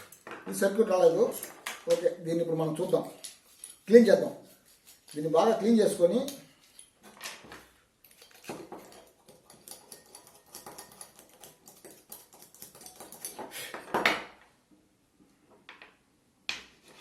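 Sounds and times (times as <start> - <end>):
scratchy scraping and rubbing: 2.6 - 6.9.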